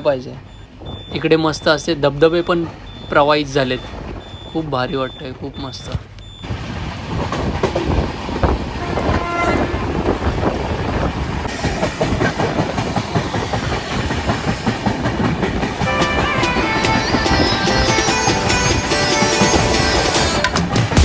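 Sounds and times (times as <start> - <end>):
train rumbling: 0.0 - 21.0
wheels clattering over rail joints: 0.0 - 21.0
music: 15.8 - 21.0.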